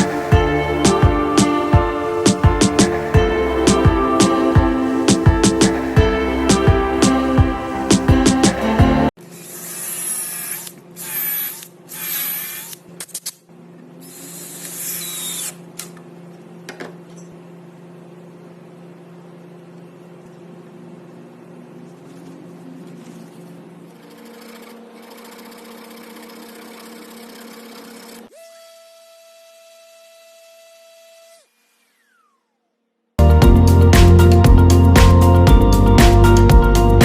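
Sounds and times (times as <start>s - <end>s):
power tool motor humming: 0.0s - 12.9s, 14.0s - 15.6s, 24.0s - 32.8s.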